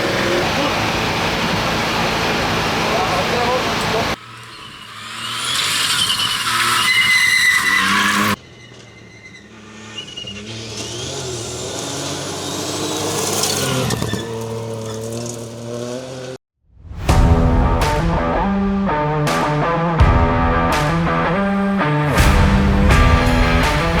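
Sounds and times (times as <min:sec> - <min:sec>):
rally car engine revving: 0:00.0 - 0:16.4, 0:17.7 - 0:24.0
tyre squeal: 0:04.2 - 0:15.6
rock guitar music: 0:17.4 - 0:24.0.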